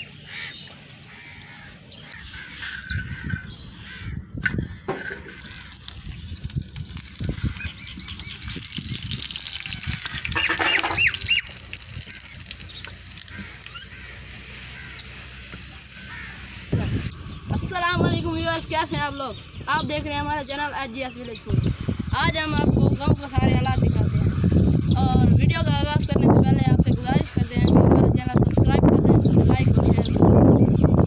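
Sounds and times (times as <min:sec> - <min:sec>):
birds calling: 0:00.0 - 0:31.0
steady hiss: 0:12.9 - 0:18.6.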